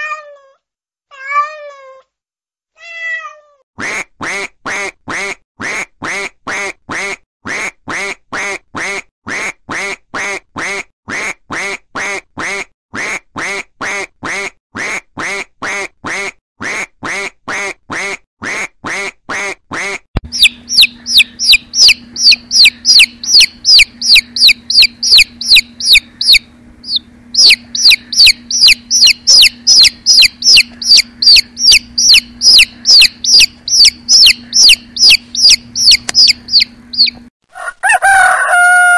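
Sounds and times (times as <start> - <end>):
duck quacking: 3.8 - 37.2
baby chicks peeping: 20.2 - 37.3.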